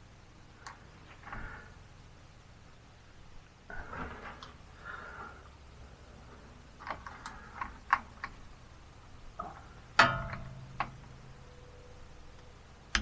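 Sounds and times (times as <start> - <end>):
sharp metallic clank: 10.0 - 11.6.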